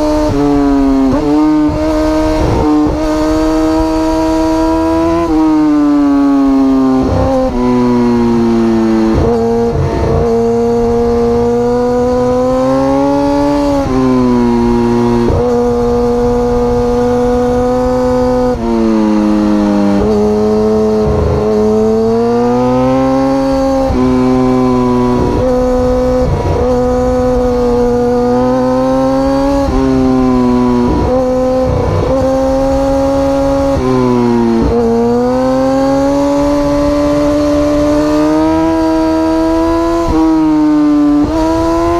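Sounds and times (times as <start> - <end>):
motorcycle engine at high revs: 0.0 - 41.9
wind rumble: 13.0 - 22.3, 23.3 - 39.3.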